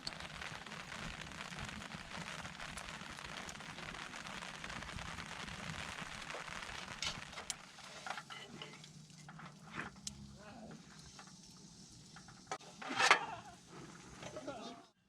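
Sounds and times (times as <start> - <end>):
sharp fire pops: 0.0 - 10.2
campfire crackling: 0.0 - 15.0.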